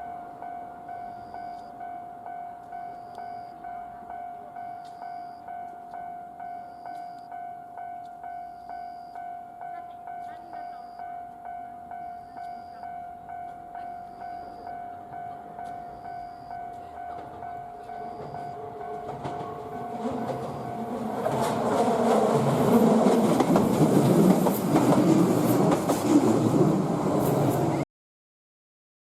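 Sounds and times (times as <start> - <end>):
electric train passing: 0.0 - 27.8
short high beeps: 0.9 - 2.0, 2.6 - 3.8, 4.6 - 7.5, 8.1 - 9.6, 10.2 - 11.3, 11.9 - 13.1, 13.7 - 15.0, 15.6 - 19.1.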